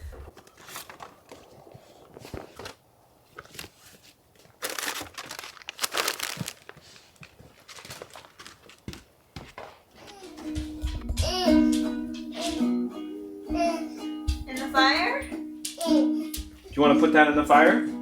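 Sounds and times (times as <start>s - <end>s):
paper crumpling: 0.0s - 9.2s.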